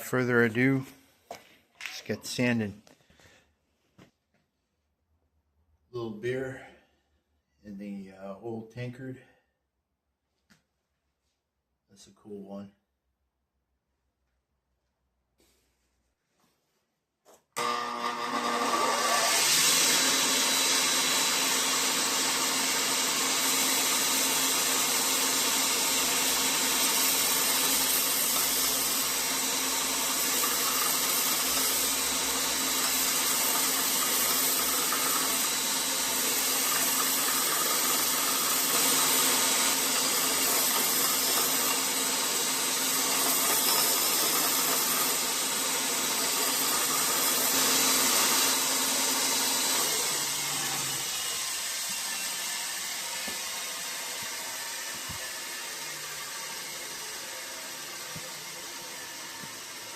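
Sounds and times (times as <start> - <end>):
belt sander grinding metal: 17.6 - 59.9.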